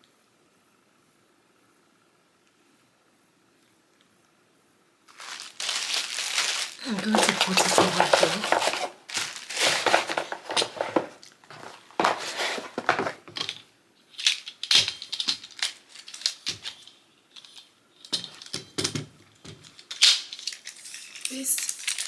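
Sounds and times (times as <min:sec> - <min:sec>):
packaging rustling: 0:05.1 - 0:13.6, 0:14.2 - 0:17.6
clicks and knocks of handling: 0:06.8 - 0:22.0.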